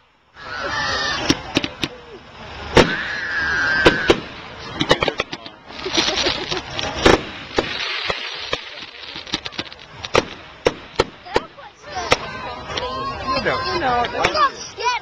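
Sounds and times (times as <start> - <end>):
fireworks crackling: 0.0 - 15.0
hissing crackle spray: 1.2 - 12.8
fireworks bangs: 2.6 - 12.9.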